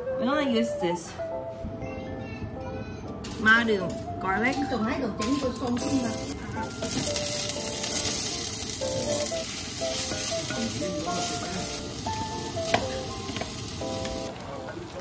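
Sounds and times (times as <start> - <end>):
onion and garlic sizzling in oil: 5.3 - 14.4.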